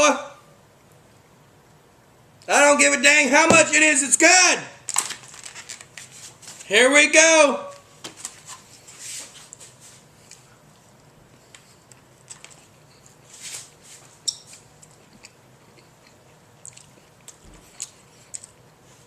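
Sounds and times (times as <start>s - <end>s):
person chewing food: 14.5s - 18.6s.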